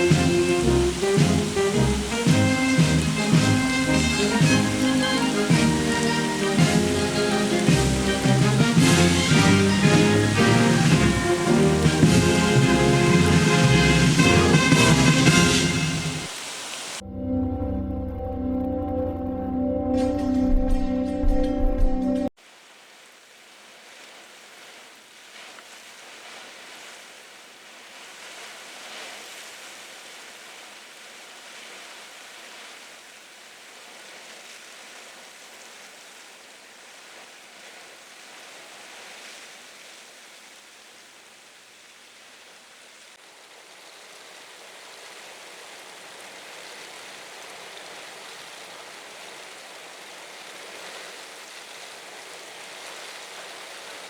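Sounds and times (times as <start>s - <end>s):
heavy rain hissing: 0.0s - 17.0s
wind gusts: 0.0s - 17.0s.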